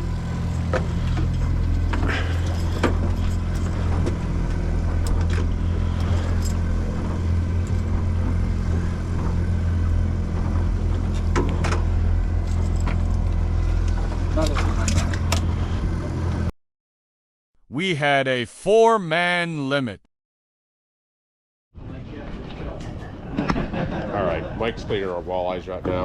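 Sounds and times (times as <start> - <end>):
boat engine droning: 0.0 - 16.5.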